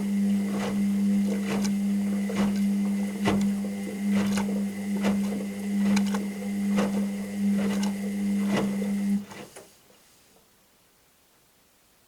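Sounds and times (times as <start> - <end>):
washing machine motor hum: 0.0 - 9.6.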